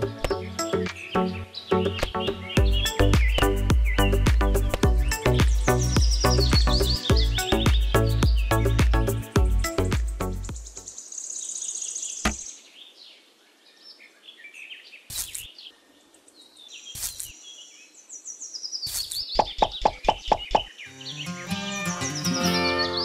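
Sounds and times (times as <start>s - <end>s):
birds chirping: 0.0s - 23.0s
brief rustles: 15.1s - 15.5s.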